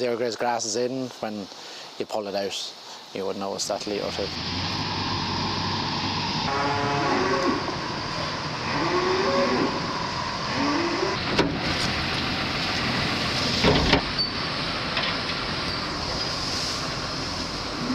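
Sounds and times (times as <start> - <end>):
steady background noise: 0.0 - 17.9
cows mooing: 6.5 - 7.8, 8.6 - 9.9, 10.5 - 11.2.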